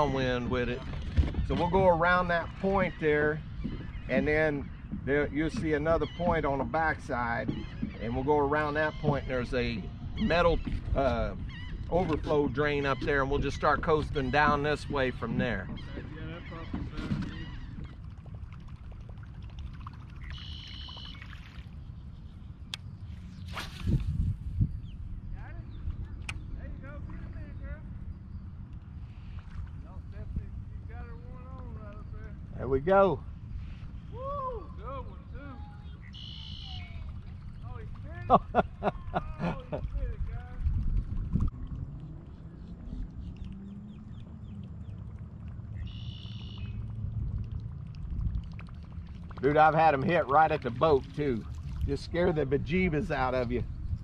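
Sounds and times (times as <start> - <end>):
bird calls: 0.0 - 19.2, 19.8 - 24.0, 30.8 - 40.0, 41.9 - 46.9
water lapping against a hull: 0.0 - 54.0
wind rumble on microphone: 0.0 - 54.0.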